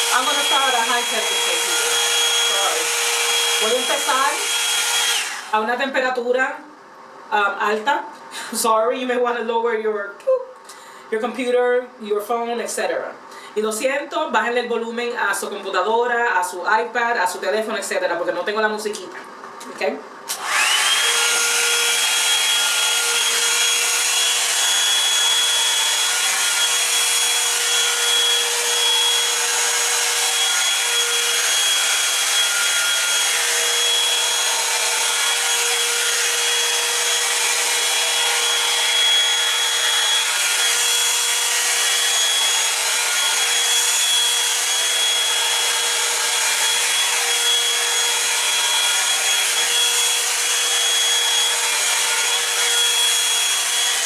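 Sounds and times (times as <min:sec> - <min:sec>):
hair dryer air rush and whine: 0:00.0 - 0:05.8, 0:20.3 - 0:54.0.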